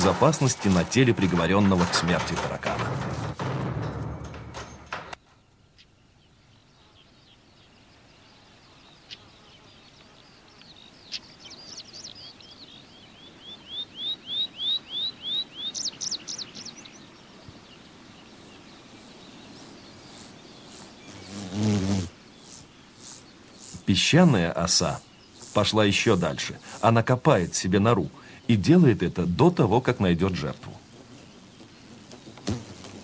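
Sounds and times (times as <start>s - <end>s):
faint outdoor hiss: 0.0s - 33.0s
songbird chirping and trilling: 4.6s - 32.7s.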